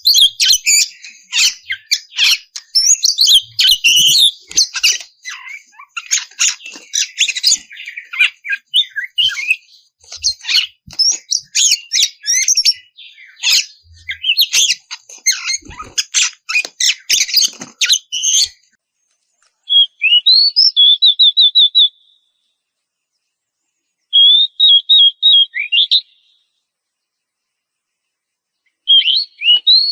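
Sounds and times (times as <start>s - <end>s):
bird singing scratchy song: 0.0s - 29.9s.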